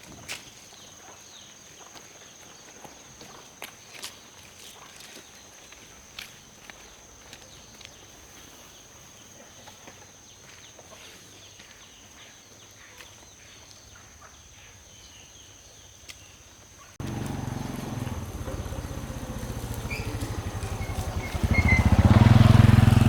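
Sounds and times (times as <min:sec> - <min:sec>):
chickens clucking: 0:17.0 - 0:23.0
loud motor running: 0:17.0 - 0:23.0.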